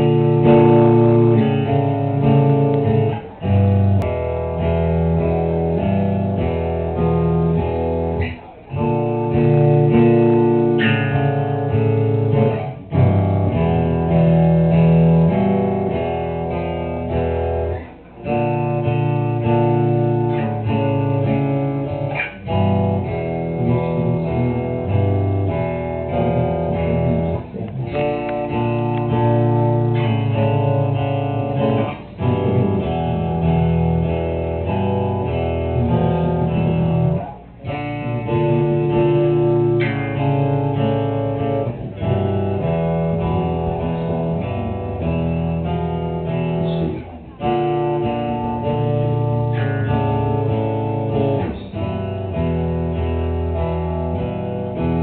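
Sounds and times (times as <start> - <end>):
guitars playing picked phrase: 0.0 - 55.0.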